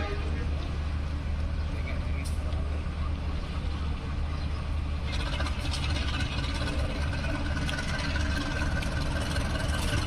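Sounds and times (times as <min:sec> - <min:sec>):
diesel locomotive engine running: 0:00.0 - 0:10.0.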